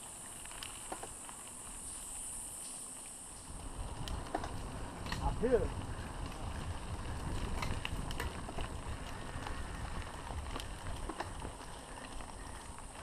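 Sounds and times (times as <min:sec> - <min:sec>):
bike clicks and rattles: 0:00.0 - 0:13.0
wind rumbling on microphone: 0:03.1 - 0:13.0.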